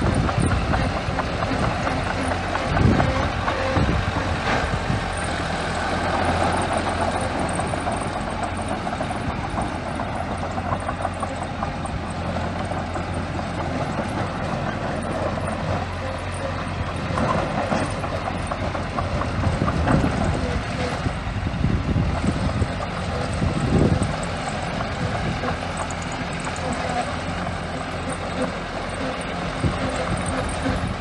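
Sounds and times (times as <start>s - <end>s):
bulldozer diesel engine running: 0.0s - 31.0s
metal clanks and rattles: 6.0s - 21.0s, 22.9s - 31.0s.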